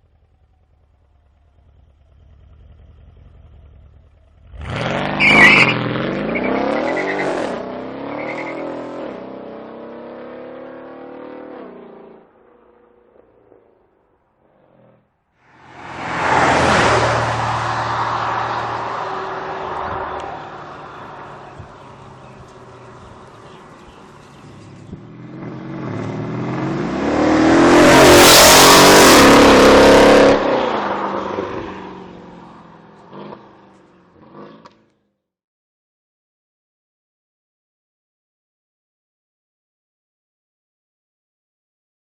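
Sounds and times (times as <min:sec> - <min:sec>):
car exhaust accelerating: 0:00.0 - 0:09.3, 0:15.6 - 0:34.8.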